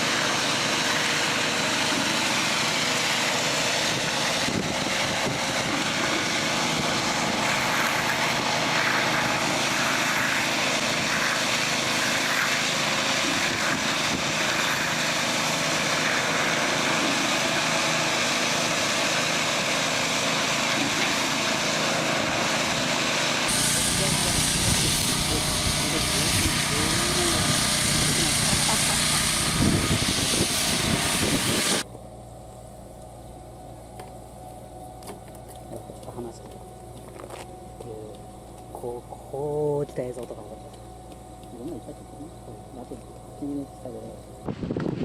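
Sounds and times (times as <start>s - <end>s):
machine engine droning: 0.0s - 45.0s.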